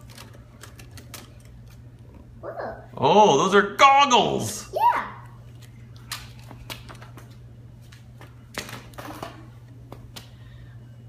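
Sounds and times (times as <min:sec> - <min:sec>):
toys and paper rustling: 0:00.0 - 0:01.9
steady low hum: 0:00.0 - 0:11.0.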